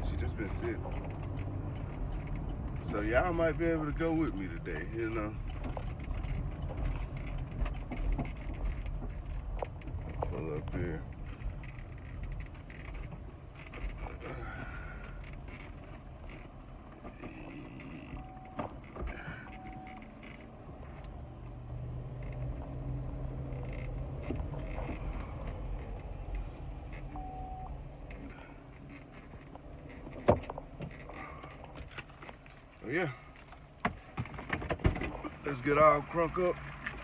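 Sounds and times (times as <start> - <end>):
vehicle engine running: 0.0 - 34.5
short beeps: 18.2 - 18.6, 19.4 - 20.1, 27.1 - 27.8.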